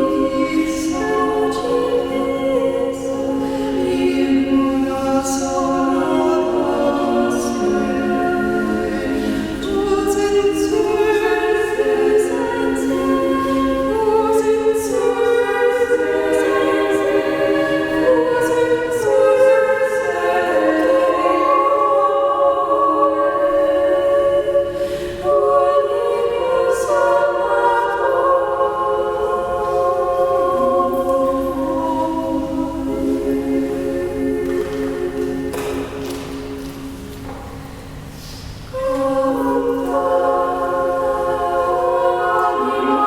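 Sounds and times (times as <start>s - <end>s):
choir singing a hymn: 0.0s - 43.0s.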